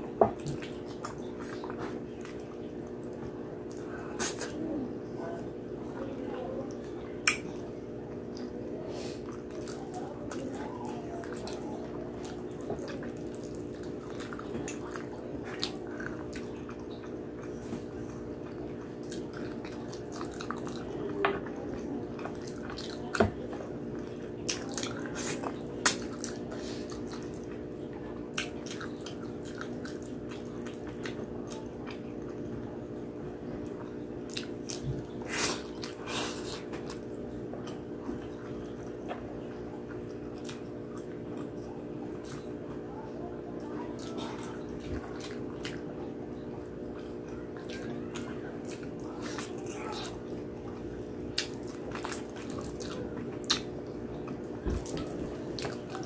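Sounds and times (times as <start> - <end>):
steady low hum: 0.0 - 56.0
wet chewing and biting: 46.9 - 56.0.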